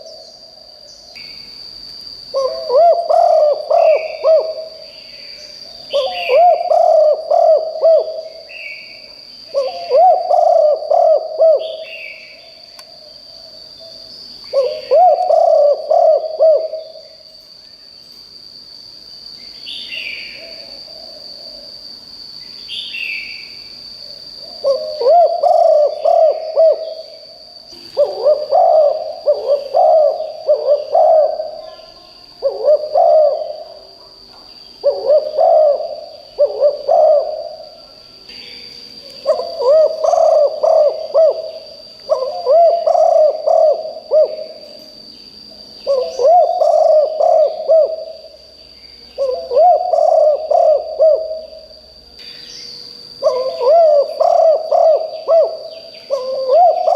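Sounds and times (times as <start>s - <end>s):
steady high-pitched whine: 0.0s - 56.9s
other birds calling: 2.2s - 12.9s, 13.8s - 17.2s, 24.5s - 33.9s, 34.5s - 44.9s, 45.8s - 56.9s
dove cooing: 2.3s - 5.3s, 5.9s - 12.4s, 14.5s - 17.1s, 24.4s - 34.1s, 34.8s - 37.9s, 39.2s - 44.8s, 45.8s - 48.4s, 49.2s - 51.8s, 53.2s - 56.9s.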